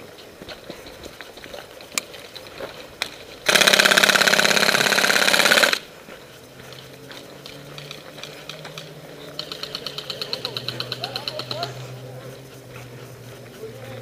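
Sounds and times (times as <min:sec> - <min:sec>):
airsoft rifle full-auto burst: 0:03.4 - 0:05.9.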